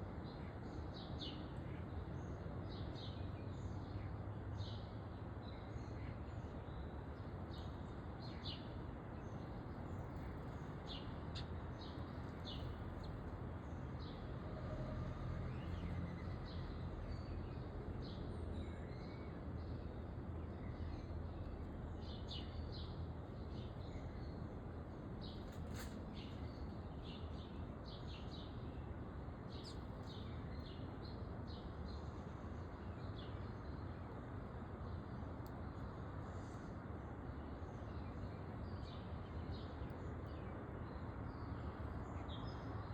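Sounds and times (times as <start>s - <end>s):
songbirds chirping: 0.0s - 42.9s.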